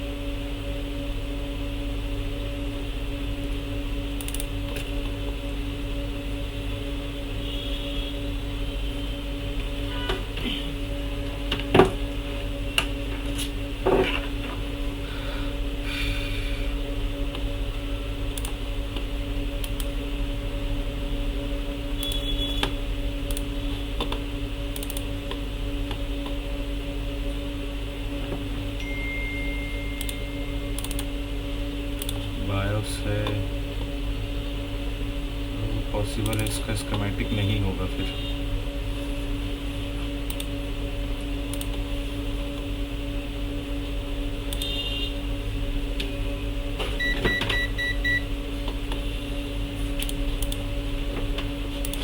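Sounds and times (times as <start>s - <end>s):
steady electrical hum: 0.0s - 52.0s
computer keyboard clicks: 4.2s - 4.8s, 18.4s - 18.6s, 23.3s - 25.1s, 30.8s - 31.1s, 32.0s - 32.2s, 36.2s - 36.6s, 40.3s - 40.5s, 50.0s - 50.6s.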